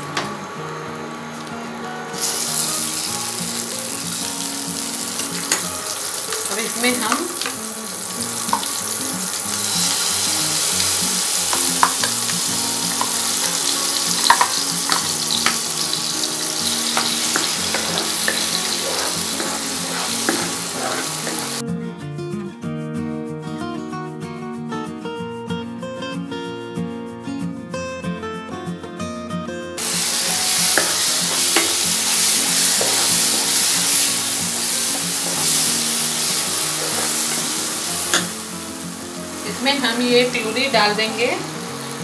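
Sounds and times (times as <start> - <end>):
faint background music: 0.0 - 42.0
oil sizzling in a pan: 1.1 - 21.6, 29.8 - 42.0.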